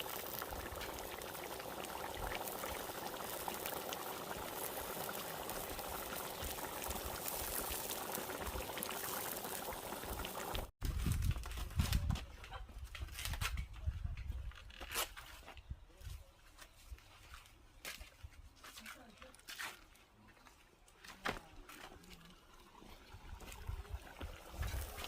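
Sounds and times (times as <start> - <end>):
pot of food boiling: 0.0 - 11.6, 22.0 - 25.0.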